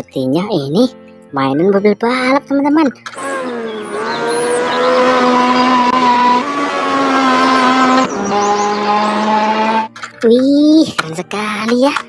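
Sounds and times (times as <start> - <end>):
race car engine revving: 3.2 - 10.0.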